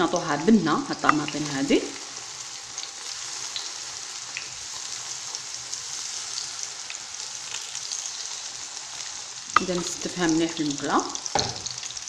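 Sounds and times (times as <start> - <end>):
tomatoes sizzling in oil: 0.0 - 12.0.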